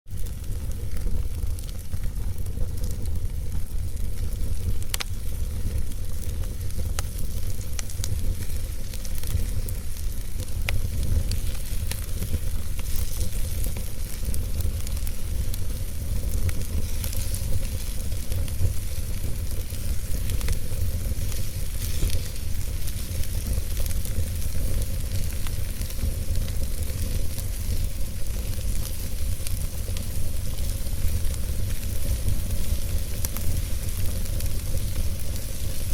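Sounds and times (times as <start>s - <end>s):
campfire crackling: 0.1s - 35.9s
fire hiss: 0.1s - 35.9s
low wind rumble: 0.1s - 35.9s.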